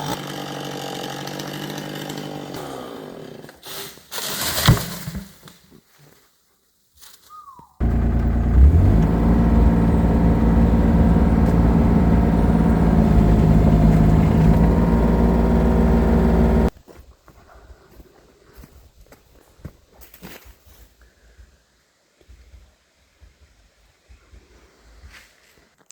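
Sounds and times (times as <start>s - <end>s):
engine running steadily: 7.8s - 16.7s.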